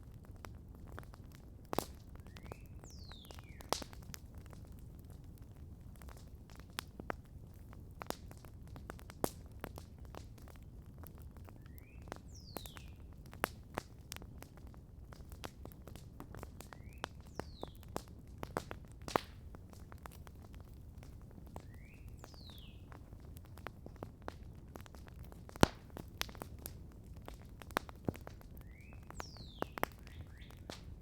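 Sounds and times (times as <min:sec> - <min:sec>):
campfire crackling and popping: 0:00.0 - 0:31.0
bird whistling call: 0:28.6 - 0:30.6.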